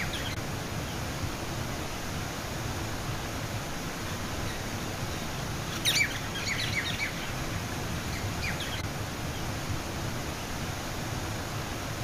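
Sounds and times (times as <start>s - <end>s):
songbird chirping: 0.0s - 1.0s, 4.4s - 9.5s
waterfall rushing: 0.0s - 12.0s.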